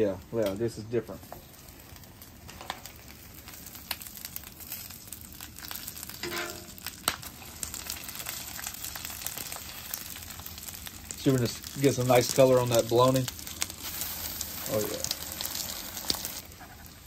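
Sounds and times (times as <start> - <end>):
food sizzling on griddle: 0.0 - 17.0
metal spatula scraping cooktop: 6.2 - 6.7.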